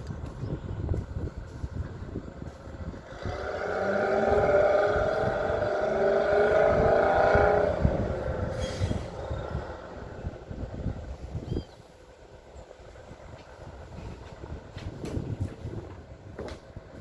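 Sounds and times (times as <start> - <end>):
low uneven rumble: 0.0 - 17.0
heavy engine whining: 1.4 - 11.4.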